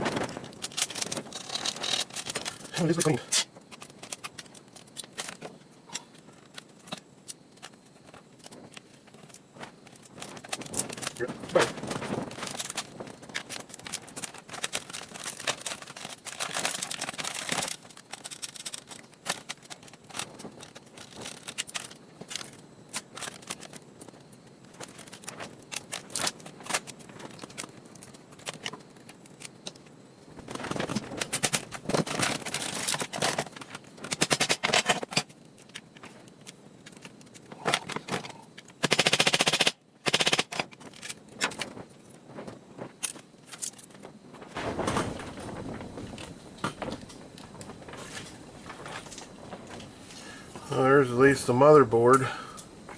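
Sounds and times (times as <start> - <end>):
laptop parts clattering: 0.0 - 29.8, 30.4 - 38.8.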